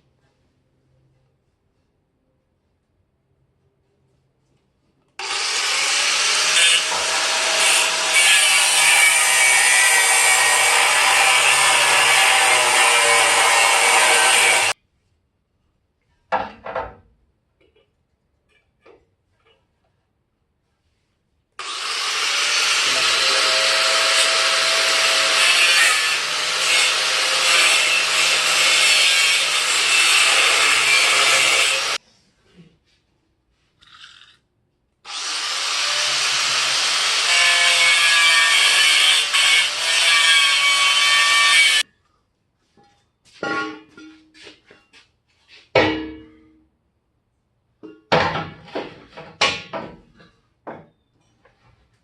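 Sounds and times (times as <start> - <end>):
power tool working on metal: 5.2 - 14.8, 21.6 - 32.0, 35.1 - 41.8.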